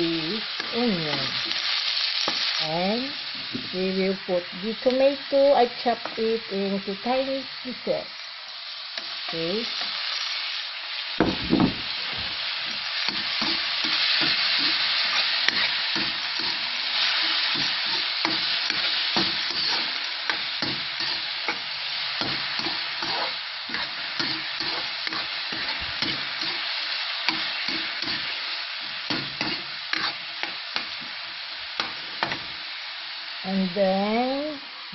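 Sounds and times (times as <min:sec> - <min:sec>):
food sizzling in a frying pan: 0:00.0 - 0:34.9.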